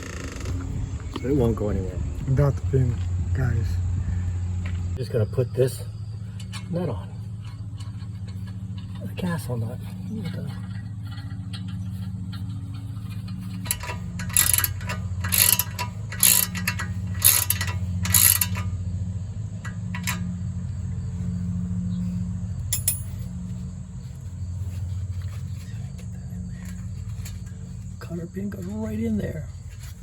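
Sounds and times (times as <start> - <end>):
steady low hum: 0.0 - 30.0
wrench metallic clicking: 13.5 - 18.7, 19.6 - 20.3, 22.7 - 23.2.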